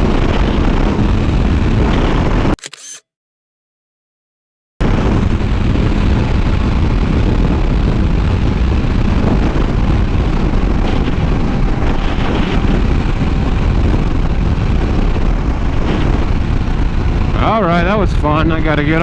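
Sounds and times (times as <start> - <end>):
wind rushing on microphone: 5.1 - 19.0.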